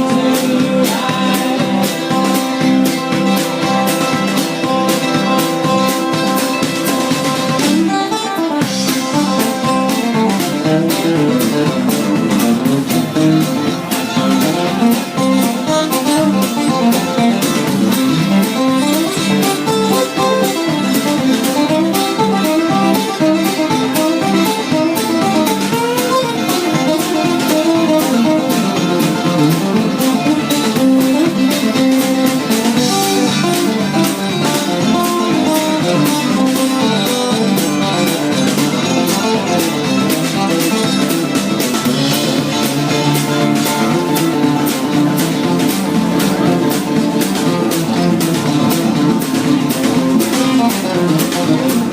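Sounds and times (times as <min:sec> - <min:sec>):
guitar picking melody: 0:00.0 - 0:51.9
live band playing: 0:00.0 - 0:51.9.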